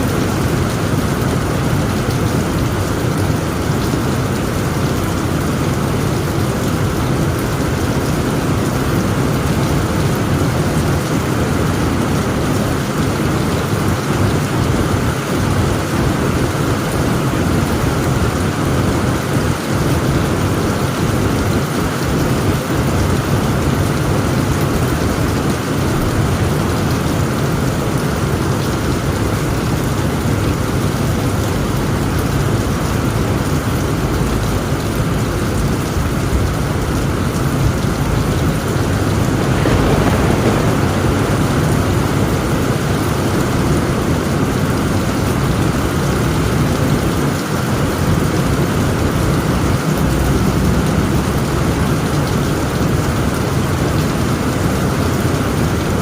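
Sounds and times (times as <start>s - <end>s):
heavy rain on tent roof: 0.0s - 56.0s
low rumble of thunder: 0.0s - 56.0s.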